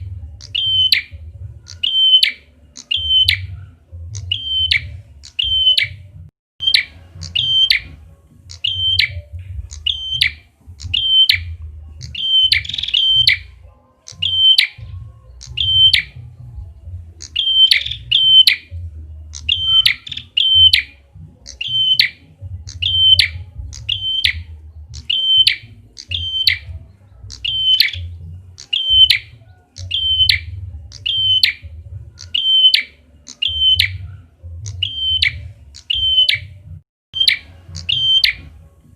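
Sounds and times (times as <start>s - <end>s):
bird chip calls: 0.0s - 16.3s, 17.2s - 36.6s, 37.2s - 38.5s.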